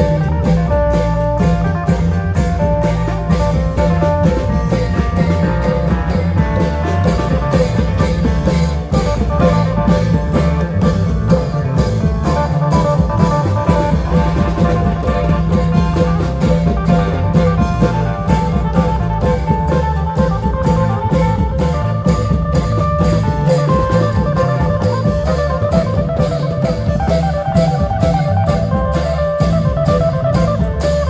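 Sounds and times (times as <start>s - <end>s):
long drums beating: 0.0s - 31.0s
plucked string melody: 0.0s - 31.0s.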